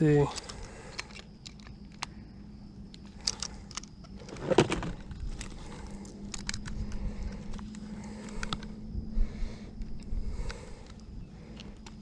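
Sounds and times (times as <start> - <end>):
steady low hum: 0.0 - 12.0
handling clicks and jingling: 2.9 - 8.7.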